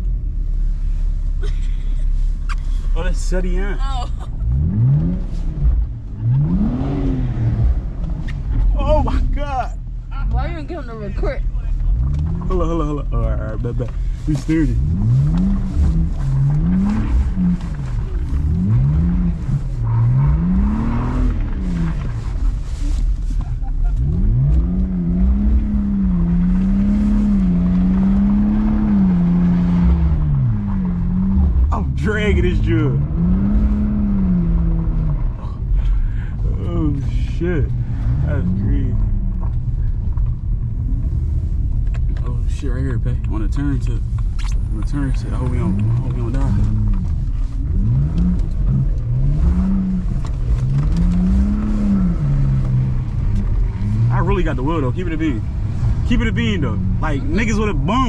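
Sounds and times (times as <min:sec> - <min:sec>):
car engine revving hard: 0:04.4 - 0:09.6, 0:11.9 - 0:22.3, 0:24.0 - 0:39.3, 0:44.7 - 0:58.0.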